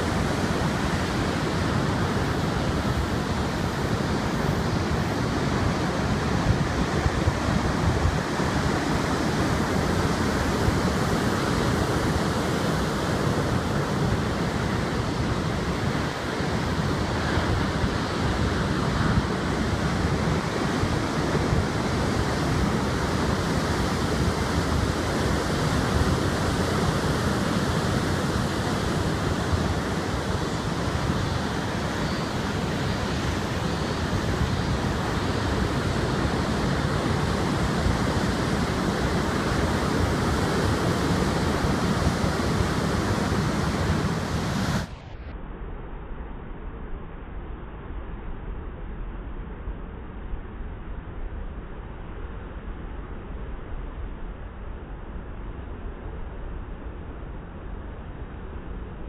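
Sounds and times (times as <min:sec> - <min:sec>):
heavy surf breaking: 0:00.0 - 0:45.0
wind rumbling on microphone: 0:00.0 - 0:59.0.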